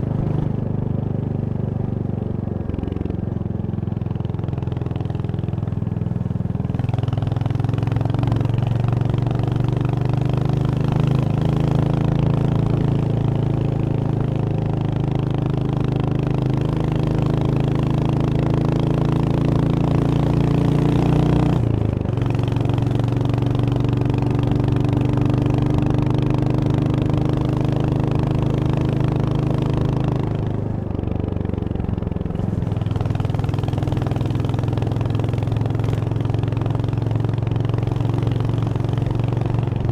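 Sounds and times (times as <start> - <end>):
motorcycle engine pulling: 21.0 - 39.9.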